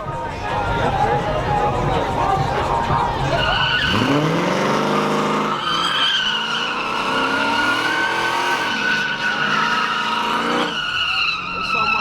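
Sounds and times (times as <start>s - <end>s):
car engine revving: 0.3s - 12.0s
tyres squealing: 0.5s - 12.0s.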